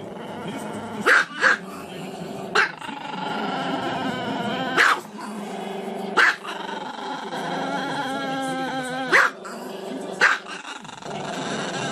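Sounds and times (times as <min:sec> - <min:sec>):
dog barking: 0:01.0 - 0:01.6, 0:02.5 - 0:02.8, 0:04.8 - 0:05.1, 0:06.2 - 0:06.6, 0:09.1 - 0:09.4, 0:10.2 - 0:10.6
dog howling: 0:06.3 - 0:09.4.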